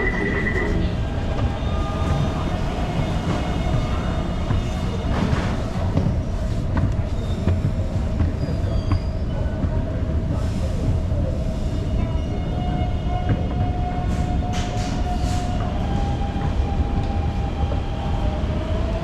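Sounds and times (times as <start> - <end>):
thin whine: 0.0 - 0.8
train rumble: 0.0 - 19.0.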